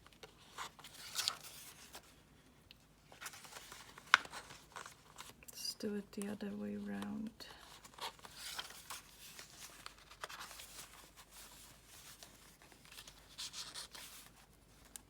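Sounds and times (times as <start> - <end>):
paper pages rustling: 0.0 - 2.2, 3.1 - 5.4, 7.6 - 15.0.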